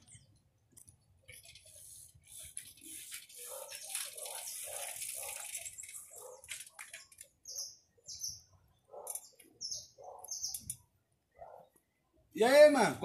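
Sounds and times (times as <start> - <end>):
steady rushing hiss: 1.6 - 5.1
small bird chirping: 7.0 - 11.8.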